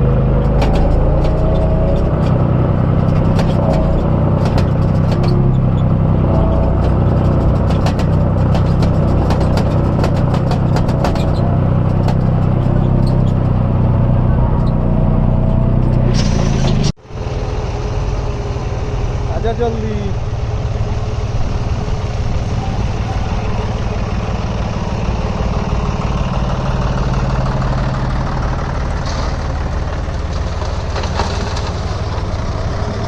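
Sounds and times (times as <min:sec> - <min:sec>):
metal clanks and knocks: 0:00.0 - 0:13.8
diesel engine running: 0:00.0 - 0:33.0
quieter engine running: 0:00.0 - 0:33.0.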